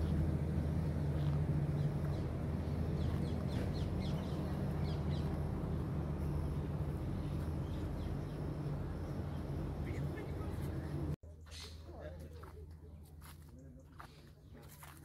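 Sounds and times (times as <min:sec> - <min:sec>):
steady low hum: 0:00.0 - 0:15.0
small birds chirping: 0:01.0 - 0:11.8.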